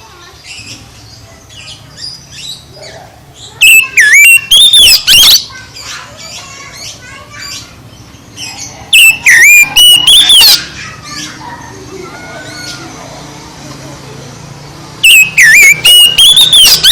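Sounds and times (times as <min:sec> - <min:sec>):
soft bird chattering: 0:00.1 - 0:13.2
bird singing whistled phrases: 0:03.5 - 0:06.4, 0:08.9 - 0:10.8, 0:15.0 - 0:16.9.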